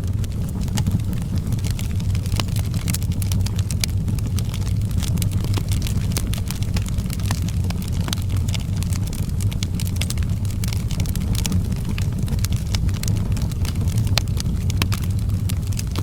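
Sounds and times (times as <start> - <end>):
low rumble of fire: 0.0 - 16.0
wood fire crackling and popping: 0.0 - 16.0.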